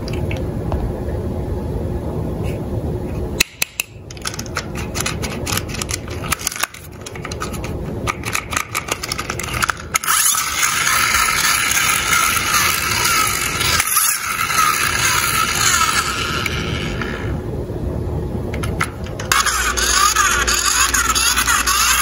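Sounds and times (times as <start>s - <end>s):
toy cars clicking and rattling: 3.7s - 17.3s, 18.6s - 22.0s
toy car wheels rolling: 4.1s - 17.4s, 18.6s - 22.0s.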